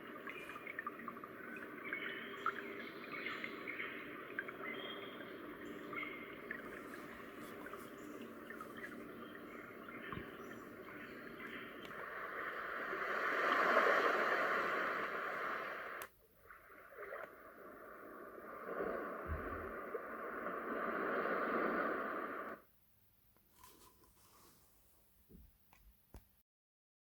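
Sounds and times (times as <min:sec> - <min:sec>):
white noise machine rushing: 0:03.0 - 0:16.1.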